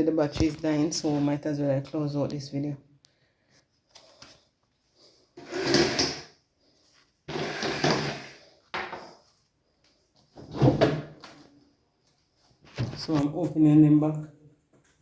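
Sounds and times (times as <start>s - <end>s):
drawers sliding open and shut: 10.4s - 11.2s.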